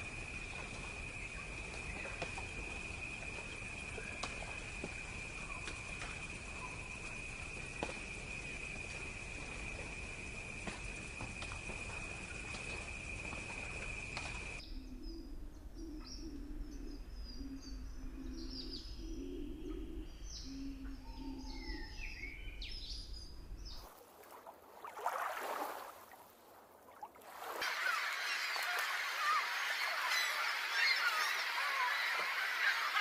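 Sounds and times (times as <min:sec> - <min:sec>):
birds chirping: 0:27.6 - 0:33.0
flock of birds calling: 0:27.6 - 0:33.0.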